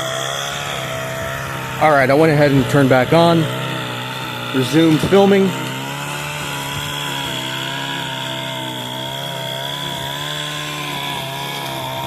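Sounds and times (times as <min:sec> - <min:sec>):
string trimmer engine running: 0:00.0 - 0:12.0.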